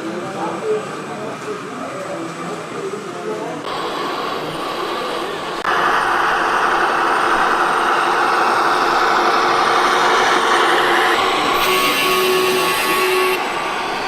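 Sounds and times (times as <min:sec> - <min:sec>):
engine-like running noise: 0:00.1 - 0:14.0
steady high tone: 0:03.7 - 0:14.0.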